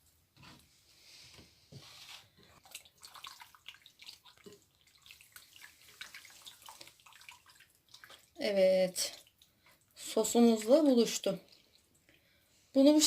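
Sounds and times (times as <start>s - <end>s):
wet squelching of raw chicken: 2.4s - 12.1s.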